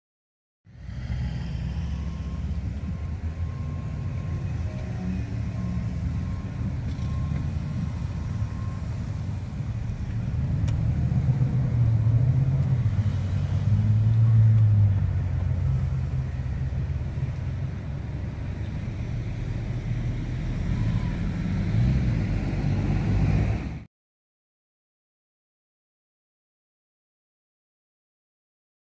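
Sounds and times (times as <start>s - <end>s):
low rumble of passing vehicles: 0.7s - 23.9s.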